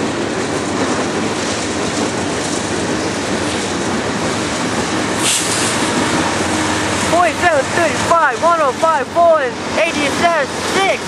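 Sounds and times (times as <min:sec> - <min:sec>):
train wheels rumbling on rails: 0:00.0 - 0:11.0
brief hiss: 0:05.2 - 0:05.9.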